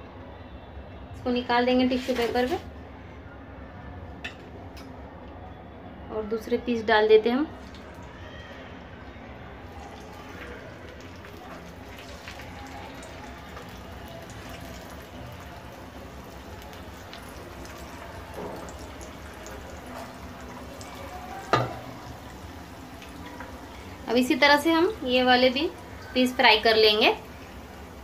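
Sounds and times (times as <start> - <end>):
chicken deep-frying in oil: 1.4 - 2.7, 7.1 - 28.0.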